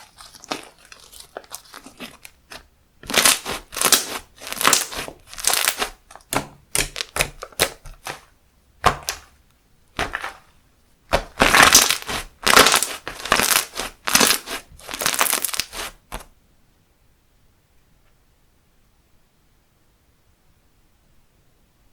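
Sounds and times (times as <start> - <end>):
slime squishing by hand: 0.0 - 16.3.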